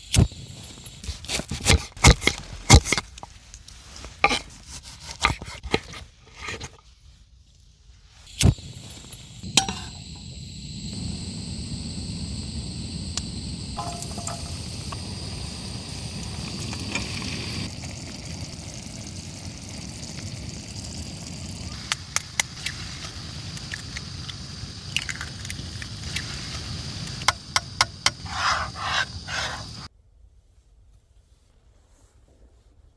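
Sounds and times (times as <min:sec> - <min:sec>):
utensil scraping a pan: 0:01.3 - 0:06.8, 0:09.5 - 0:10.3, 0:11.0 - 0:17.7, 0:27.2 - 0:29.9
food sizzling in a pan: 0:08.1 - 0:29.9
gas burner running: 0:08.3 - 0:29.9.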